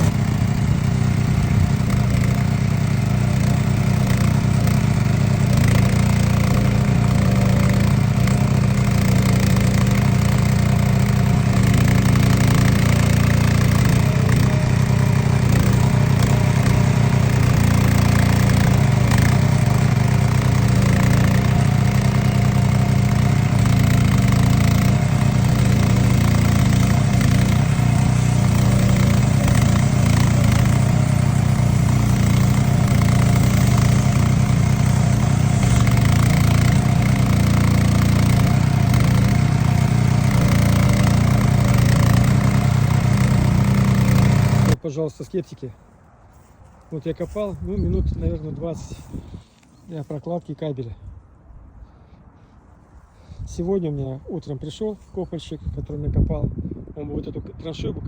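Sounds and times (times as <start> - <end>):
small petrol engine running: 0.0 - 44.8.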